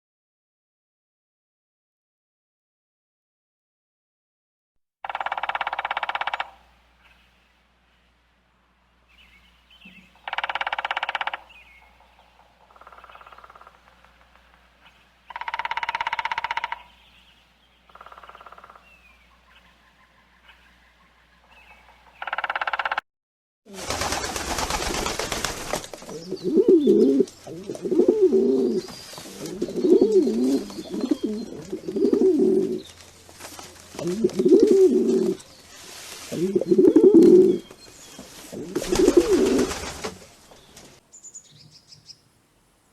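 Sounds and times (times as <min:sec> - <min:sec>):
dove cooing: 0:26.0 - 0:32.9, 0:33.9 - 0:35.5, 0:36.3 - 0:37.7, 0:38.4 - 0:40.2.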